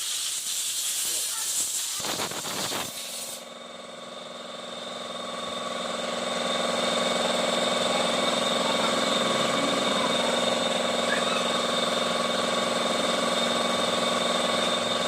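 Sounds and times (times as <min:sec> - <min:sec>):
car engine droning: 0:06.5 - 0:15.0.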